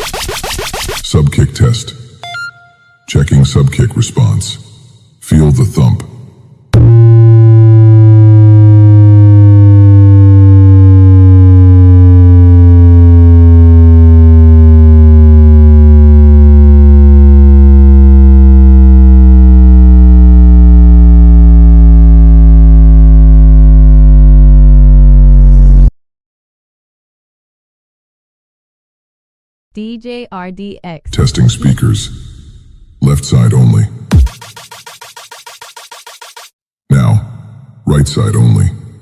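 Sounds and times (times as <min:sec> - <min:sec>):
low bass test tone: 0:06.8 - 0:25.9.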